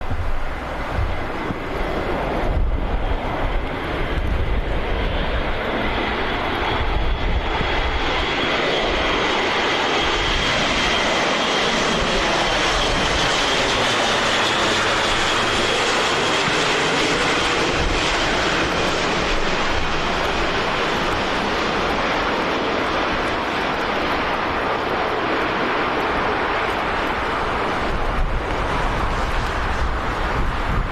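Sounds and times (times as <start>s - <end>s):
turboprop engines roaring: 0.0s - 30.9s
wind buffeting microphone: 0.0s - 30.9s.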